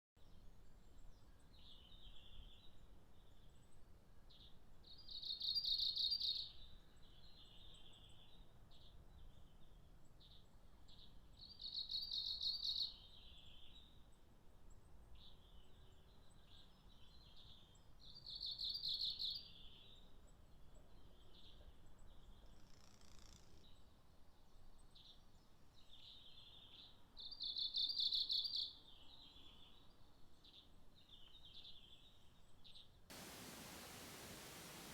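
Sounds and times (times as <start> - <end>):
faint high chirps: 33.1 - 34.9.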